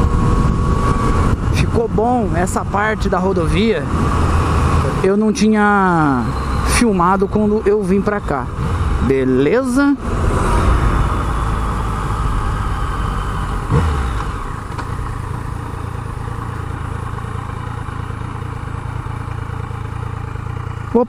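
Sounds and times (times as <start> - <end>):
wind noise on microphone: 0.0 - 4.9
motorcycle engine running: 0.0 - 21.0.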